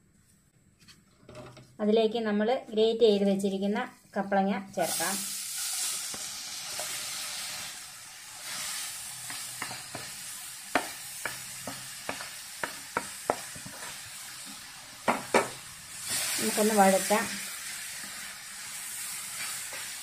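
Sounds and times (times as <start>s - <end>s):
food sizzling in a frying pan: 4.7s - 20.0s.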